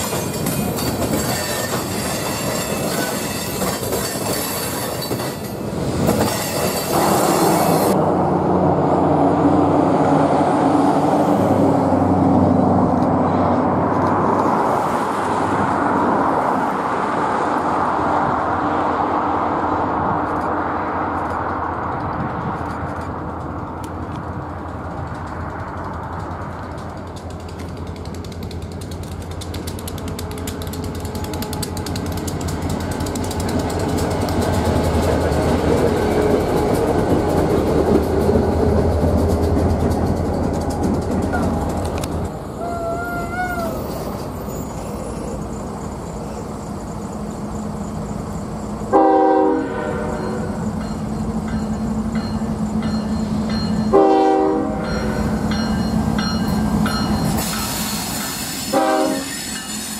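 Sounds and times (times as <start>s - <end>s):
wheels clattering on track: 0.0s - 8.0s, 20.0s - 42.6s
diesel locomotive rumble: 0.0s - 59.5s.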